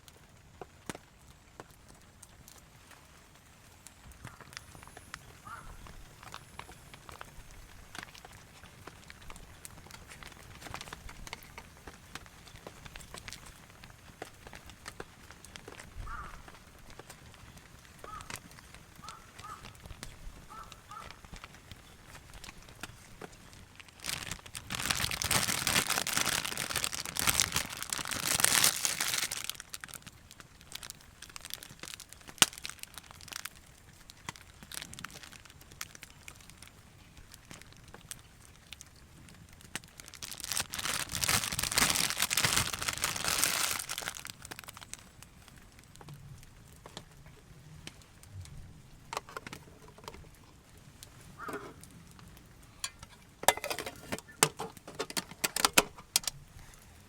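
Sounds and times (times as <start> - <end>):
plastic crinkling and rustling: 0.0 - 57.0
small clicks and knocks: 46.8 - 50.5, 51.4 - 56.4.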